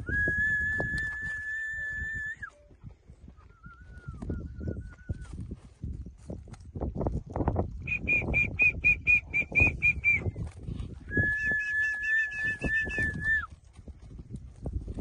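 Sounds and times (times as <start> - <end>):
long steady whistle: 0.0 - 2.7, 3.4 - 5.3, 11.1 - 13.5.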